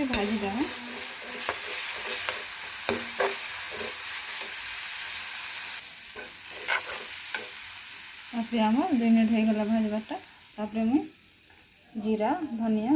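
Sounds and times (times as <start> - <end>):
spatula scraping against pan: 0.0 - 4.8, 6.1 - 7.6
masala sizzling in hot oil: 0.0 - 12.9.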